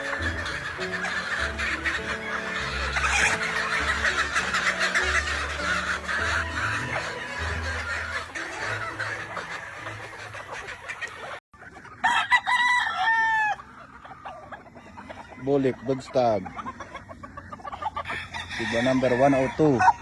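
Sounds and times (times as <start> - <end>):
background music: 0.0 - 11.4
chickens clucking: 0.0 - 20.0
rooster crowing: 12.0 - 13.7, 18.0 - 20.0.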